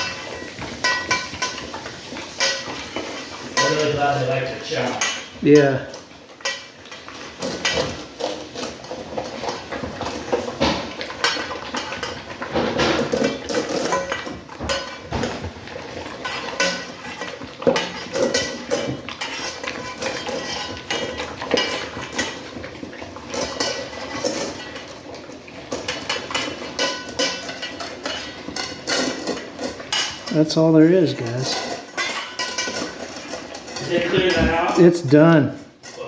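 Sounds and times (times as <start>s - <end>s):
dogs chewing and licking: 0.0s - 35.7s
food bowl clattering: 0.0s - 36.0s.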